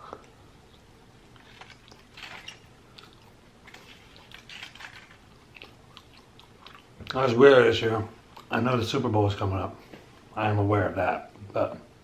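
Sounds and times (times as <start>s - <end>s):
person chewing wet mouth sounds: 0.0s - 7.0s, 8.2s - 8.5s.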